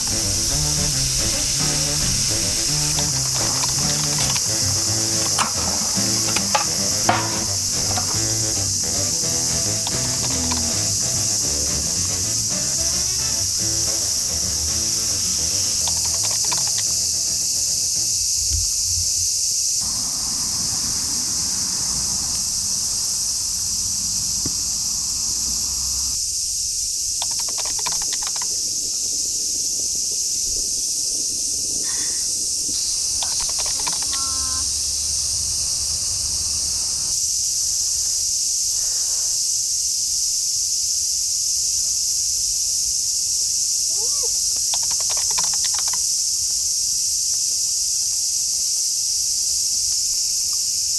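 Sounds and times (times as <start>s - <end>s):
brief clicks and clatters: 0.0s - 11.0s, 27.2s - 28.6s, 32.7s - 34.4s, 44.7s - 46.1s
high-pitched insect chorus: 0.0s - 50.9s.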